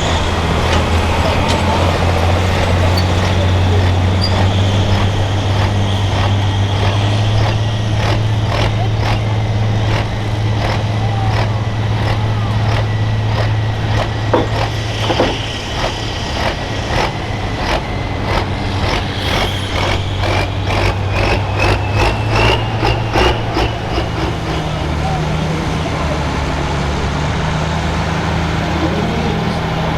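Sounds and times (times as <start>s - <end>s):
thin high whine: 0.0s - 24.4s
tractor diesel engine running: 0.0s - 29.9s
sharp clicks: 0.6s - 24.5s.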